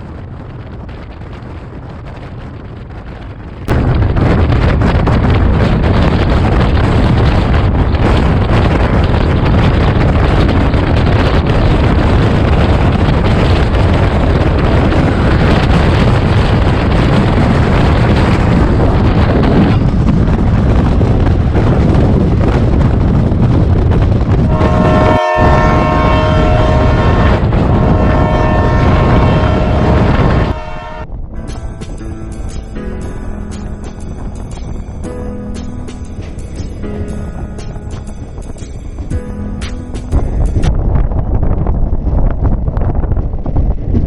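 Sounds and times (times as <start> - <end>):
train rumbling at speed: 0.0 - 44.0
wind buffeting microphone: 0.0 - 44.0
train horn: 24.4 - 31.2.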